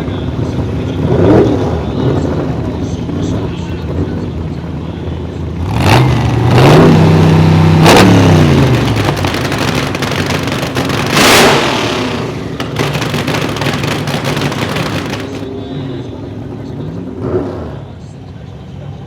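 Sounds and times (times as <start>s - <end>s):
car engine revving: 5.6s - 15.5s
short loud noise blasts: 8.6s - 15.4s.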